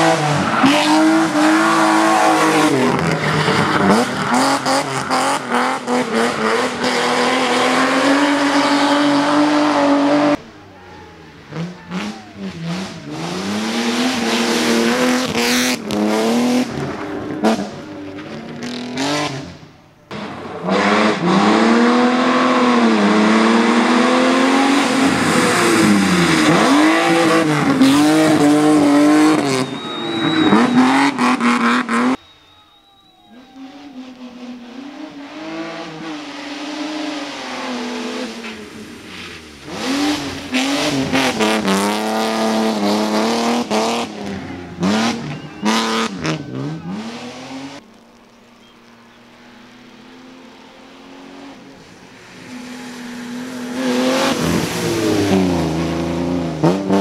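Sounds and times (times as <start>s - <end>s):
rally car engine revving: 0.0s - 32.2s, 33.4s - 57.0s
sharp clicks and pops: 47.8s - 49.1s.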